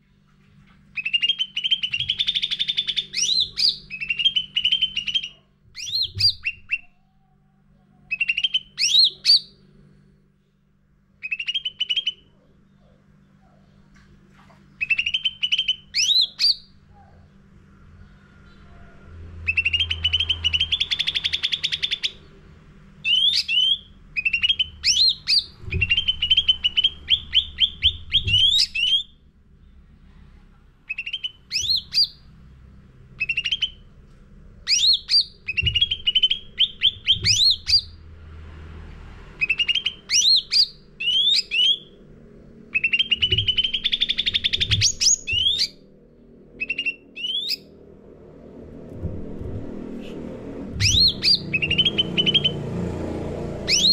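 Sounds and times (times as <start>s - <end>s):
songbird trilling and whistling: 1.0s - 7.0s, 8.1s - 9.6s, 11.2s - 13.0s, 14.8s - 16.7s, 19.4s - 22.3s, 23.0s - 29.2s, 30.9s - 32.2s, 33.2s - 33.8s, 34.6s - 38.0s, 39.4s - 42.0s, 42.7s - 45.9s, 46.6s - 47.7s, 50.8s - 52.6s, 53.6s - 53.9s.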